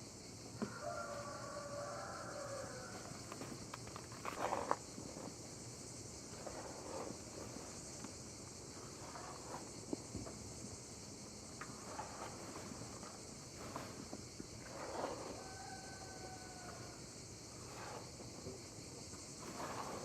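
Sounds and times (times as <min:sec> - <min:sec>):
crickets chirring: 0:00.0 - 0:20.0
rustles: 0:00.6 - 0:20.0.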